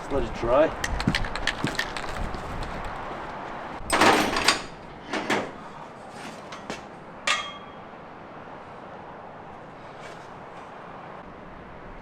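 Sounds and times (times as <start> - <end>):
sharp metallic clank: 7.2 - 7.8.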